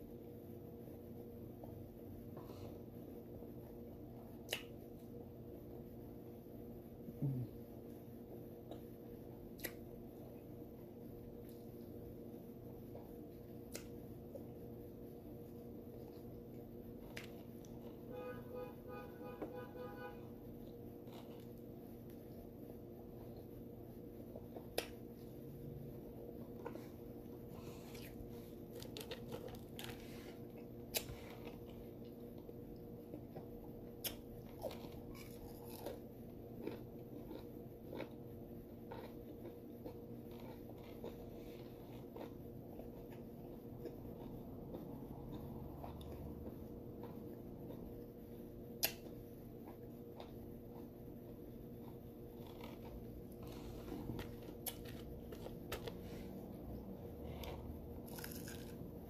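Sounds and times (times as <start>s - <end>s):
steady low hum: 0.0s - 59.0s
wet mouth clicks and smacks: 9.5s - 9.8s
biting and chewing a burger: 20.5s - 23.6s, 24.2s - 59.0s.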